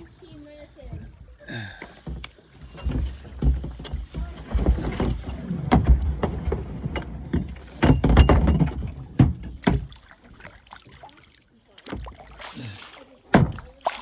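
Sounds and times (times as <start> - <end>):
kayak hull scraping against logs: 1.8 - 9.9.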